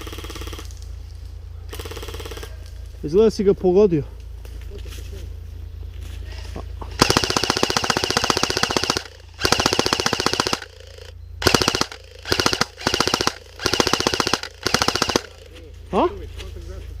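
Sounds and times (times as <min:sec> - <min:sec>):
airsoft gun firing bursts: 0:00.0 - 0:00.7, 0:01.7 - 0:02.6, 0:06.9 - 0:15.5.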